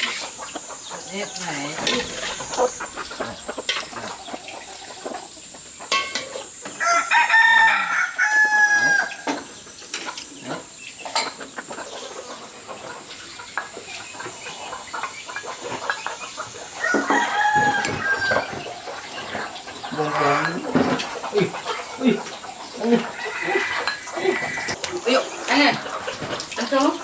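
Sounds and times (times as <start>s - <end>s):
rooster crowing: 6.7s - 9.4s, 16.8s - 18.8s, 22.8s - 24.8s.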